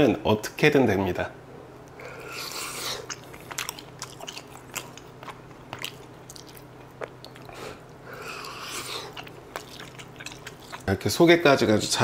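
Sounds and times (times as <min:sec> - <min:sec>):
person chewing with wet smacks: 0:01.9 - 0:11.0.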